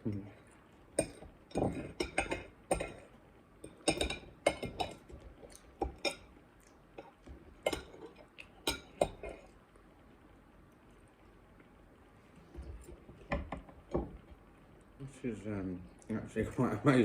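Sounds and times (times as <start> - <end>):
cutlery clinking on plate: 1.0 - 6.3, 7.0 - 9.5.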